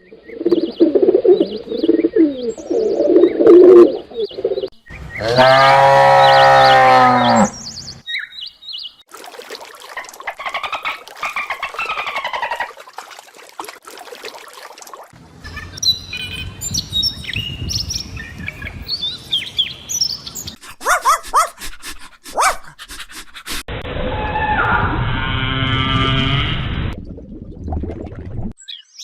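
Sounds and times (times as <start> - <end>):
birds chirping: 4.1 - 9.0, 15.8 - 23.5
cow mooing: 5.2 - 7.6
animal calls: 20.6 - 23.6.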